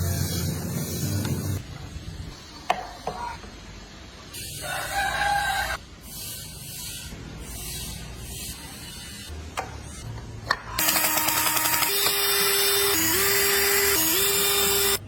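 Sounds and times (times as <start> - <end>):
electric power tool motor: 10.8 - 15.0.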